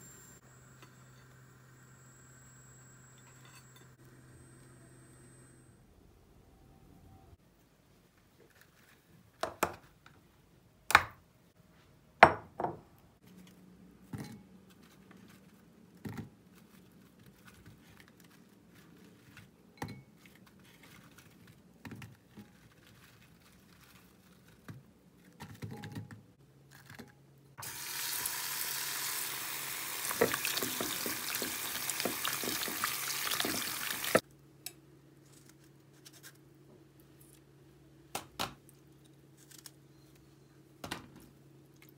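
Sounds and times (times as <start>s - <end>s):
kitchen tap running: 27.6s - 34.2s.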